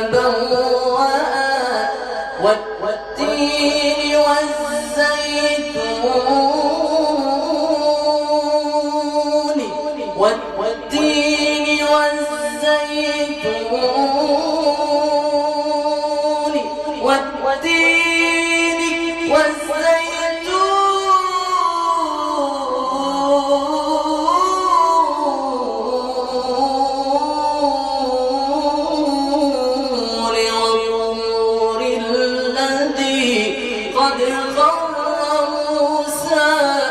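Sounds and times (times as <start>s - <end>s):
man singing long ornamented notes: 0.0s - 36.9s.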